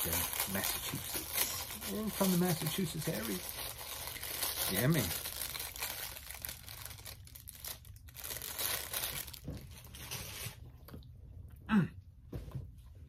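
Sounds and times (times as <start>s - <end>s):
plastic wrapper crinkling: 0.0s - 10.4s.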